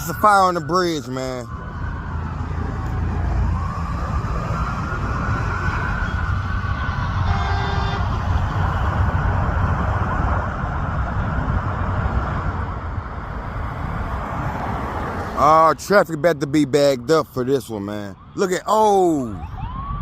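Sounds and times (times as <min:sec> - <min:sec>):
siren wailing: 0:00.0 - 0:12.0, 0:17.2 - 0:20.0
idling engines and traffic: 0:00.0 - 0:20.0
horn blast: 0:07.2 - 0:08.2.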